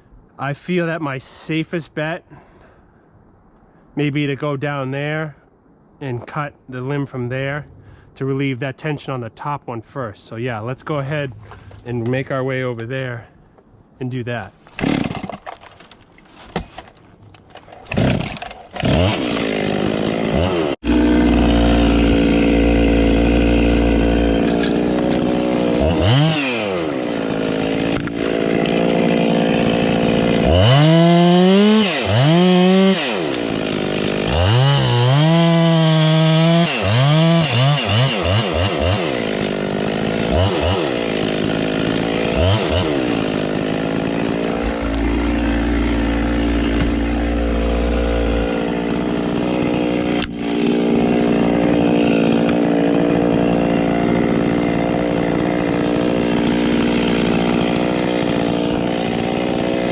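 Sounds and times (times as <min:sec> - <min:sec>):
chainsaw idling and revving: 0:17.9 - 0:59.9.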